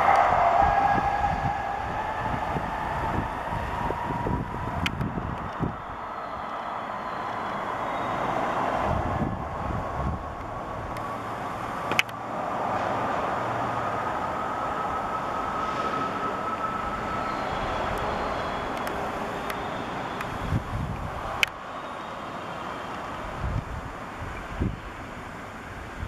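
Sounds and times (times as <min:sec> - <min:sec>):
distant train running noise: 0:00.0 - 0:26.0
faint high whine: 0:14.1 - 0:26.0.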